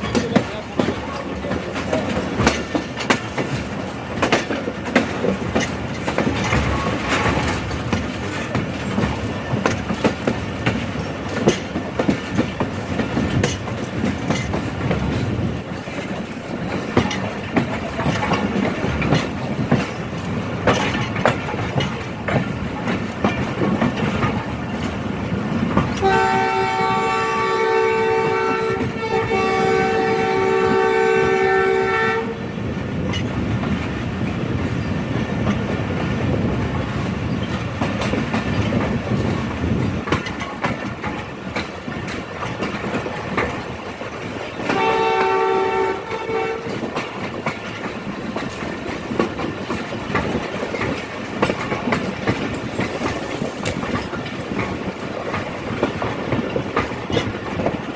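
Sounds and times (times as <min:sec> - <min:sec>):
train wheels clacking on rails: 0:00.0 - 0:57.9
train horn two-tone blast: 0:26.0 - 0:32.5, 0:44.7 - 0:46.8.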